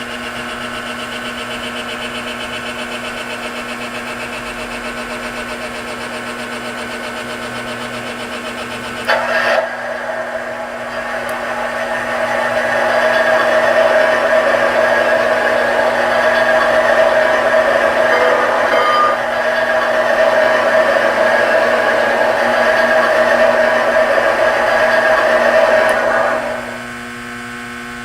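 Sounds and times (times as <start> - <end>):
high-pitched whir: 9.0 - 27.1.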